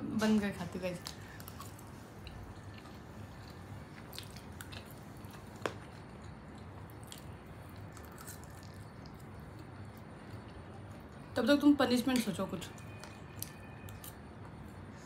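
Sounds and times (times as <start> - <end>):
people chewing: 1.0 - 11.2.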